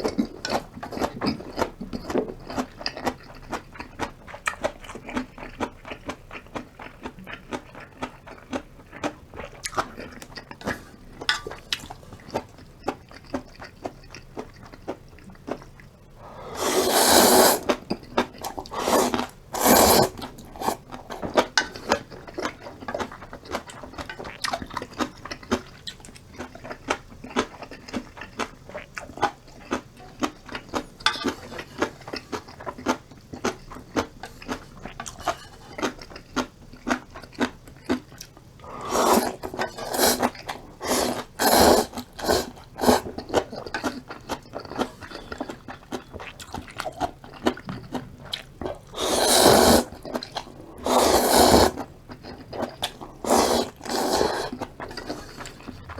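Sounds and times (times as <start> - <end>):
wet chewing and crunching: 0.0 - 16.5, 17.5 - 55.9
slurping noodles: 16.2 - 22.1, 38.6 - 43.9, 48.8 - 55.8.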